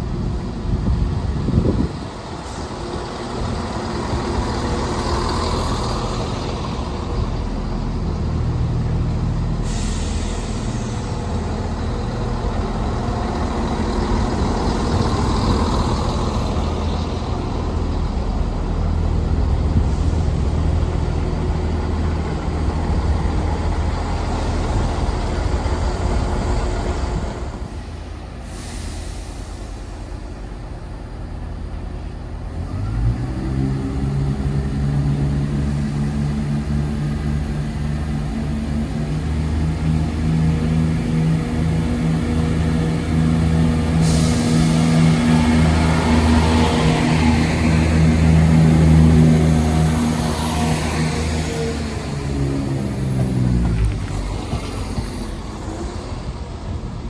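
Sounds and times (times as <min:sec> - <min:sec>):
diesel train engine running: 0:00.0 - 0:57.0
hiss: 0:09.6 - 0:12.4, 0:28.3 - 0:30.4, 0:42.5 - 0:51.1.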